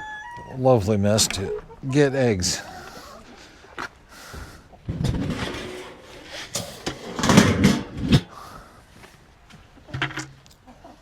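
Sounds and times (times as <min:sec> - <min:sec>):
door scraping and rattling: 0:04.9 - 0:08.3.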